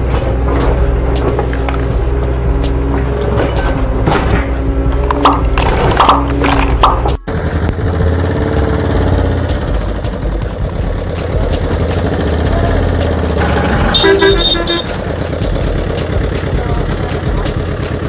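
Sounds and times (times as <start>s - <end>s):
vehicle engine running: 0.0s - 18.0s
horn short toots: 13.4s - 15.1s.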